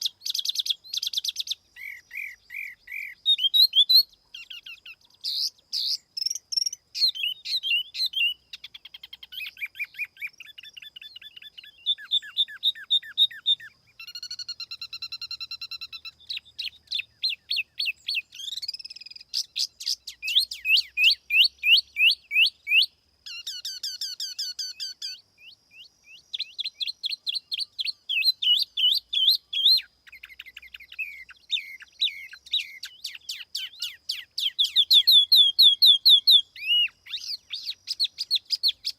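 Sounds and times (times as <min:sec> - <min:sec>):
songbird whistled notes and trills: 0:00.0 - 0:38.9.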